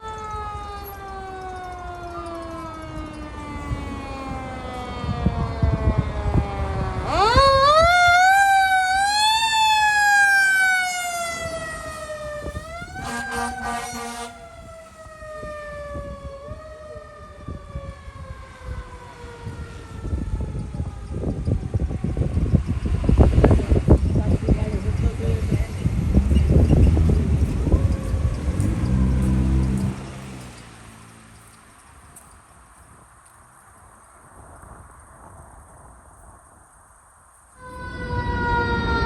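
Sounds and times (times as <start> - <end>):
horn blast: 11.2 - 14.9
low engine rumble: 19.0 - 33.6.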